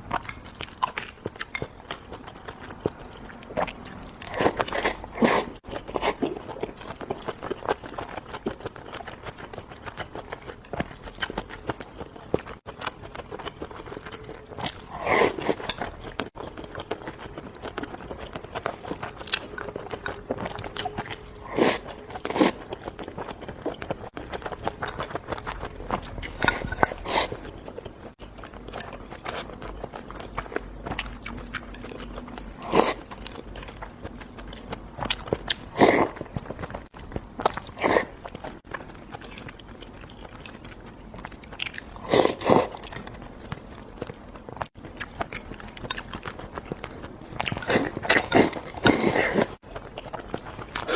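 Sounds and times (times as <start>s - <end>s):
person chewing crunchy food: 0.0s - 50.9s.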